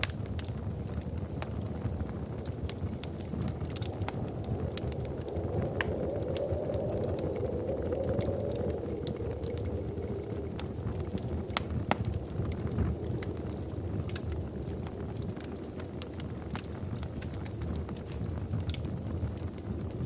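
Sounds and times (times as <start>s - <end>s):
wood fire pops and snaps: 0.0s - 20.0s
low rush of burning: 0.3s - 20.0s.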